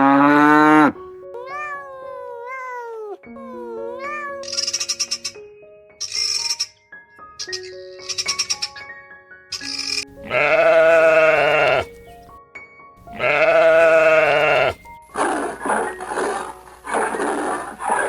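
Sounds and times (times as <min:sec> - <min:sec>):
soft background music: 0:00.0 - 0:18.0
rough animal sounds: 0:09.9 - 0:12.0, 0:13.1 - 0:18.0
sheep bleating: 0:10.2 - 0:11.9, 0:13.1 - 0:14.8.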